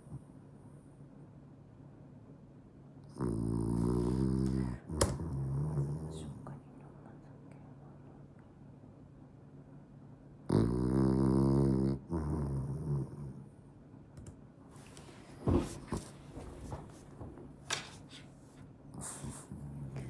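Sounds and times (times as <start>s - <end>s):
dog snoring: 3.1s - 6.4s, 10.5s - 13.4s, 19.0s - 20.0s
dog snuffles: 18.0s - 20.0s.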